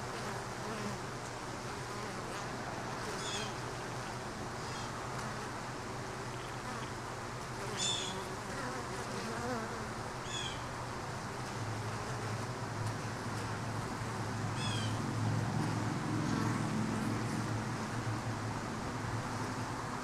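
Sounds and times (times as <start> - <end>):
bees buzzing: 0.0 - 9.9.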